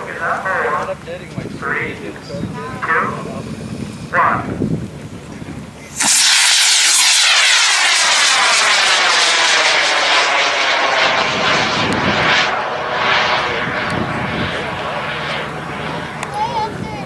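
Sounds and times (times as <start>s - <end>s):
model rocket motor roaring: 5.9s - 16.4s.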